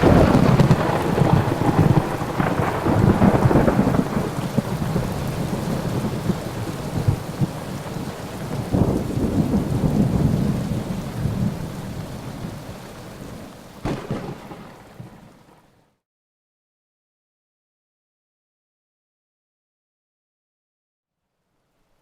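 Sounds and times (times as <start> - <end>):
sharp thunder crack: 0.0 - 7.6, 13.8 - 15.2
thunder rumbling: 0.0 - 15.6
steady rain: 0.0 - 16.0.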